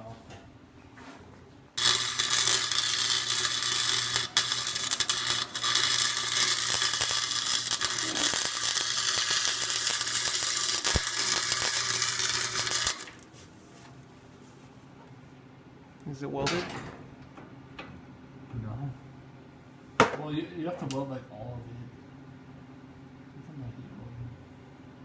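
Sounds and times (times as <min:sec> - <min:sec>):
wire-feed welder crackling hiss: 0:01.8 - 0:13.3.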